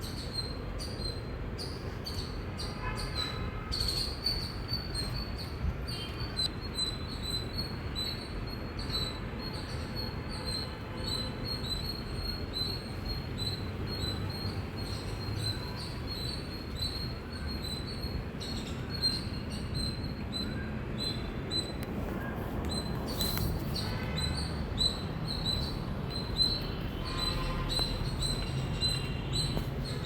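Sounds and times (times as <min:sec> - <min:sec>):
squirrel chirping: 0:22.7 - 0:30.0.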